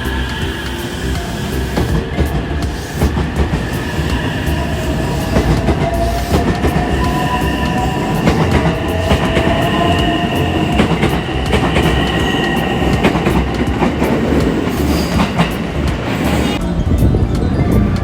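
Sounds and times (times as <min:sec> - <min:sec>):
train rumbling on rails: 0:00.0 - 0:18.0
wheels clicking over rail joints: 0:00.0 - 0:18.0
whining tones: 0:00.0 - 0:18.0.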